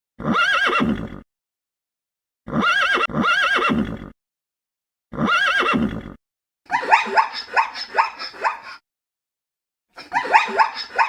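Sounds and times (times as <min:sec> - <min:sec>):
horse whinnying: 0:00.2 - 0:01.2, 0:02.5 - 0:04.2, 0:05.1 - 0:06.2.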